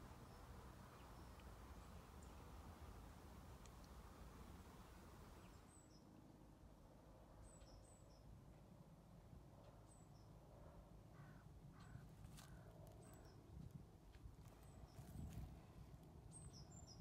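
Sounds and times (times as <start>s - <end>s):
small birds chirping: 0.0s - 6.1s, 16.3s - 17.0s
crow cawing: 11.2s - 12.6s.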